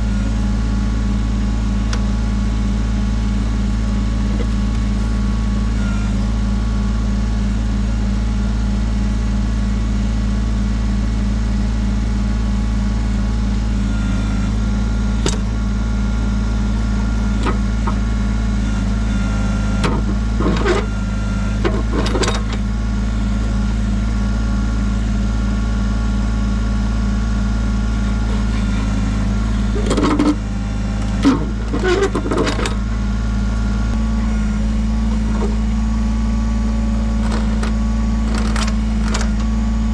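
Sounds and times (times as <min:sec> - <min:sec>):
tractor diesel engine running: 0:00.0 - 0:39.9
short clanks and scrapes: 0:29.7 - 0:30.4, 0:31.0 - 0:32.8.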